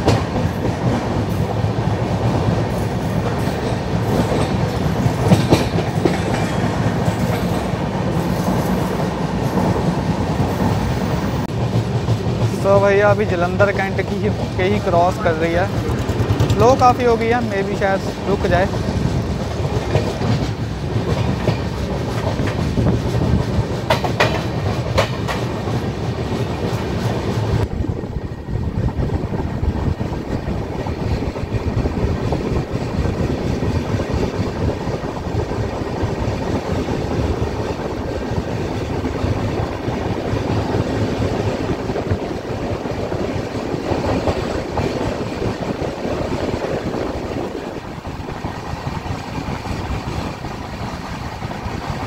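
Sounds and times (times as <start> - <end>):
wheels clacking over rail joints: 0.0 - 27.7
train coaches rumbling: 0.0 - 52.0.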